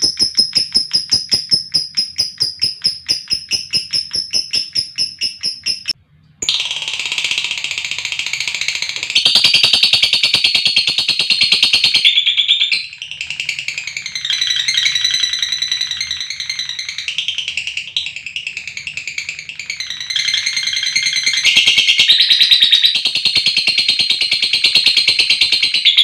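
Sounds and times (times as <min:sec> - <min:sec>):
lovebirds chattering in trills: 0:00.0 - 0:06.0.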